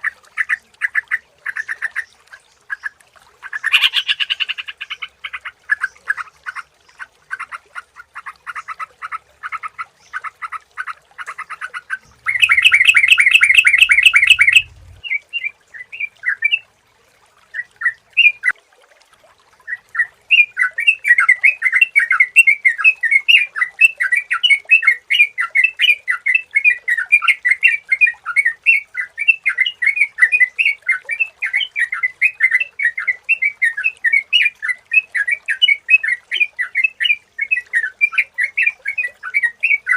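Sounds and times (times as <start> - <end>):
birds chattering calls: 12.0 - 15.0.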